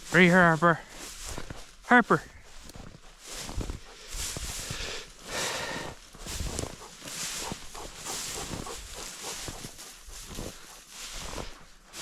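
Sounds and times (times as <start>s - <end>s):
dog breathing hard and snuffling: 3.5s - 11.7s.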